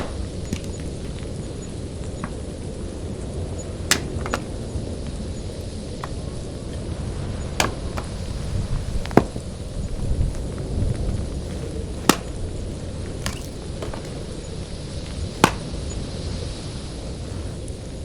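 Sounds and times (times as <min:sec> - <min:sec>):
sharp knocks: 0:00.0 - 0:01.2, 0:03.9 - 0:04.7, 0:11.5 - 0:12.4, 0:13.2 - 0:14.3, 0:15.1 - 0:15.9.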